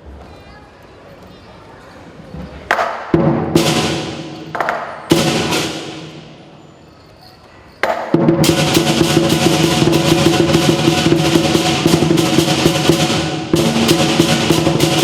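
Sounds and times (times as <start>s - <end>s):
drum gong and cymbals playing: 3.1s - 6.6s, 7.8s - 15.0s.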